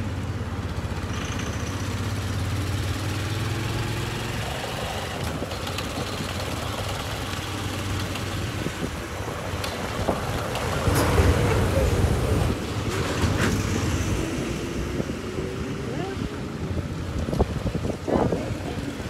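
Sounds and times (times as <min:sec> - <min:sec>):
motorcycle engine running: 0:00.0 - 0:12.8
rushing ride noise: 0:08.7 - 0:19.0.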